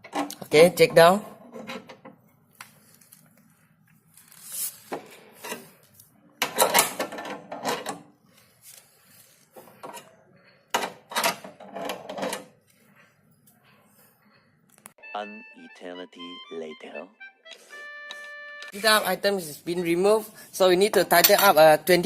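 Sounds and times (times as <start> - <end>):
car jack rattling and scraping: 1.4 - 2.1, 6.4 - 8.1, 10.7 - 12.6.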